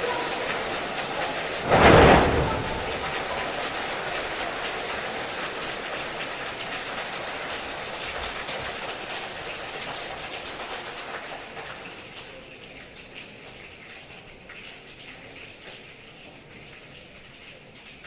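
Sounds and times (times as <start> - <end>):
many hands clapping: 0.0 - 12.3.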